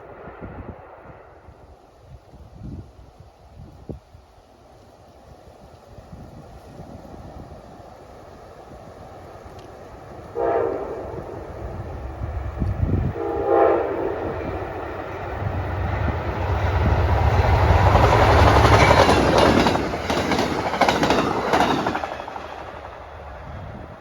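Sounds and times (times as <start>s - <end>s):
train rumble and wheel clatter: 0.0s - 24.0s
train horn blast: 10.3s - 11.5s, 12.9s - 14.6s.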